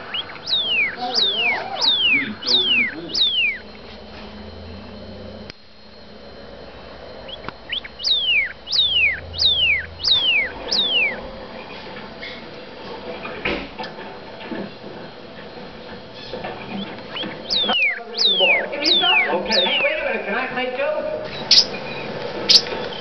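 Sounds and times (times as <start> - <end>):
bird singing clear whistles: 0.0 - 3.7, 7.3 - 11.2, 17.1 - 20.0, 21.3 - 23.0
short rising bird notes: 0.0 - 12.4, 16.7 - 20.0.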